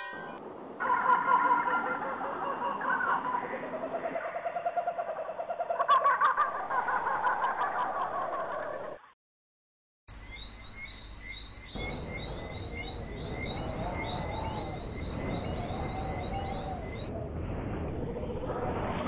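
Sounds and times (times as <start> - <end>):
high repeated bird chirps: 10.1 - 17.1
low warbling bird calls: 10.1 - 17.1
steady high tones: 11.1 - 17.1
low rushing noise: 11.7 - 19.0.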